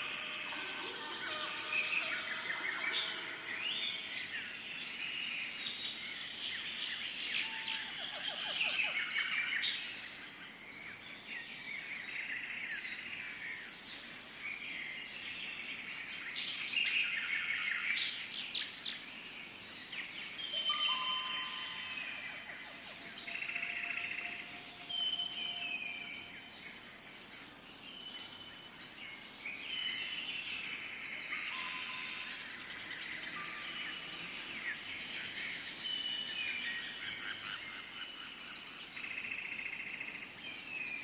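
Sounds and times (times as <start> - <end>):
steady high-pitched tone: 0.0 - 4.5, 20.5 - 26.5
birds chirping and trilling: 0.0 - 10.0, 15.6 - 41.0.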